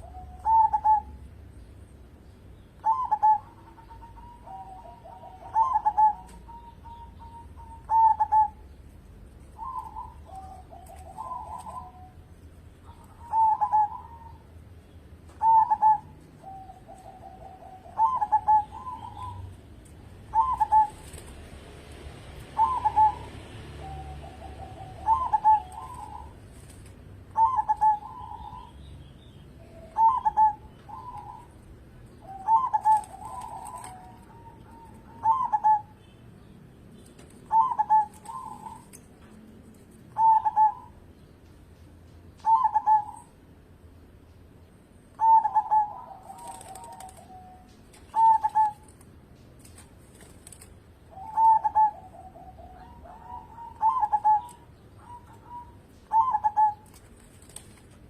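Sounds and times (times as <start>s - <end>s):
dove cooing: 0.0s - 1.4s, 2.8s - 8.8s, 9.5s - 14.5s, 15.3s - 21.4s, 22.5s - 28.9s, 29.6s - 36.1s, 37.4s - 39.3s, 40.1s - 41.0s, 42.4s - 43.4s, 45.1s - 49.0s, 51.0s - 57.7s.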